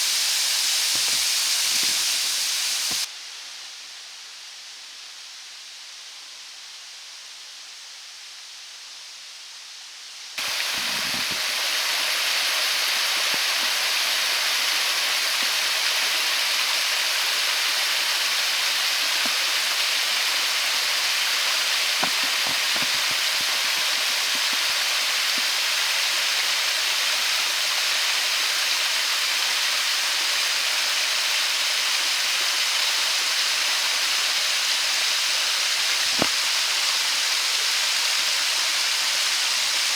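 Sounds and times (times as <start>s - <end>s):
waterfall rushing: 0.0s - 3.1s, 10.4s - 28.2s, 35.6s - 38.2s.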